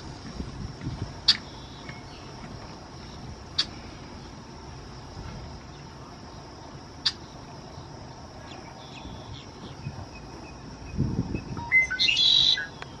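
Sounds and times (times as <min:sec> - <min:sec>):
steady high hiss: 0:00.0 - 0:13.0
blackbird singing: 0:08.4 - 0:13.0
faint high bird calls: 0:11.4 - 0:13.0.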